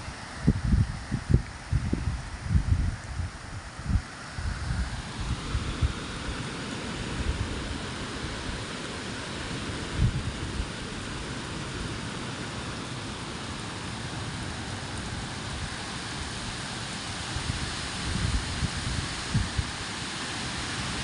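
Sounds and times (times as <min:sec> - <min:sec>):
wind buffeting microphone: 0:00.0 - 0:08.7, 0:09.6 - 0:11.3, 0:14.3 - 0:19.9
rain hissing: 0:00.0 - 0:21.0.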